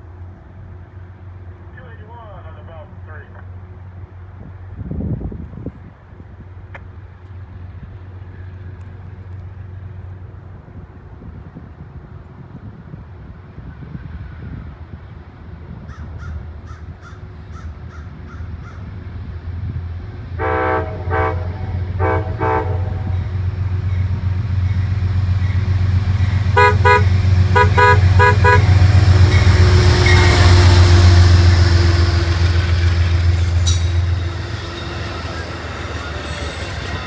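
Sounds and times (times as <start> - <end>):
locomotive air horn blasts: 20.4 - 23.2, 26.4 - 37.0
diesel engine rumble: 21.6 - 37.0.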